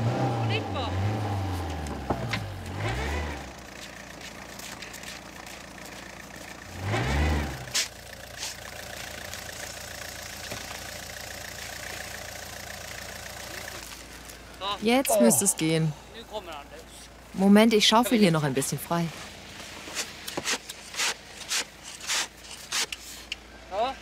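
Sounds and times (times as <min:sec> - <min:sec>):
car engine revving: 0:00.0 - 0:03.7, 0:06.2 - 0:16.5.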